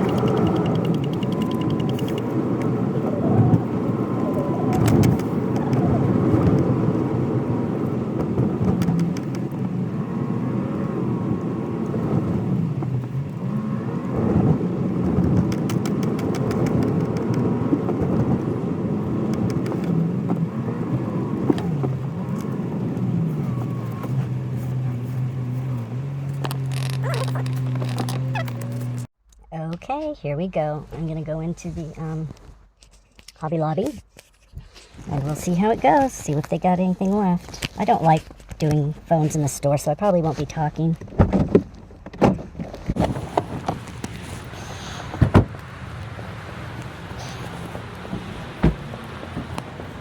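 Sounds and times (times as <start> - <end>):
clicks: 0.0 - 6.9, 7.8 - 9.7, 15.0 - 18.5, 19.2 - 20.5, 26.3 - 29.4
engine and road noise: 0.0 - 50.0.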